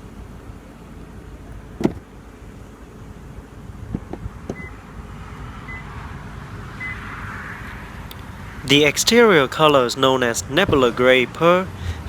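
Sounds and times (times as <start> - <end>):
car door shutting: 1.5 - 2.2, 3.8 - 4.9.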